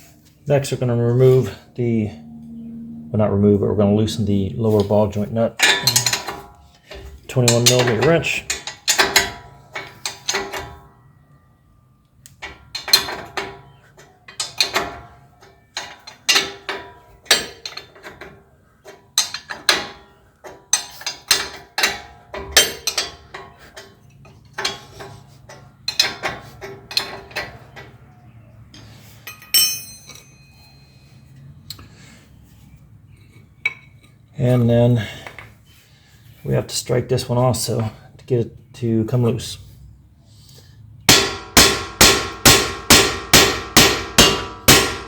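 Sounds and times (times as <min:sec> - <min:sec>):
wrench clinking and clicking: 0:05.6 - 0:06.5, 0:07.5 - 0:10.8, 0:18.9 - 0:24.8, 0:29.2 - 0:30.8.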